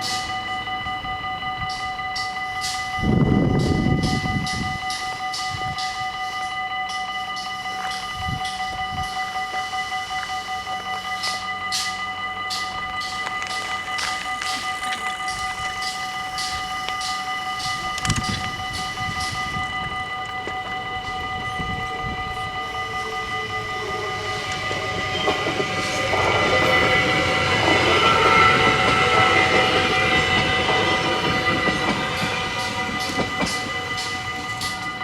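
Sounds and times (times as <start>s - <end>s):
level-crossing warning bells: 0.0s - 35.0s
train wheels clattering over rails: 23.8s - 35.0s.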